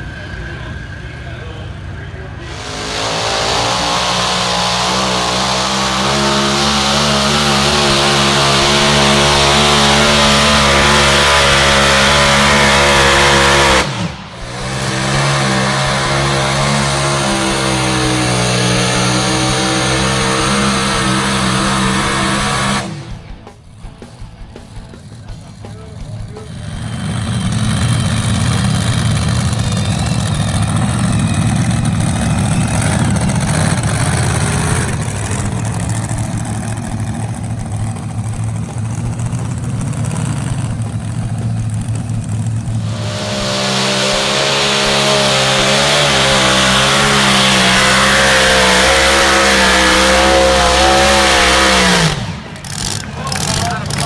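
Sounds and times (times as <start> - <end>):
vehicle engine running under load: 0.0 - 54.0
strong hiss: 2.3 - 16.4, 42.7 - 48.2.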